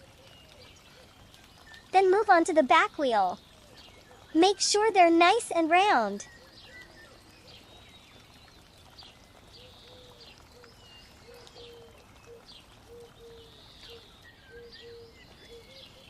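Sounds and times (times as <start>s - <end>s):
faint low cooing calls: 0.0s - 1.8s, 9.5s - 16.0s.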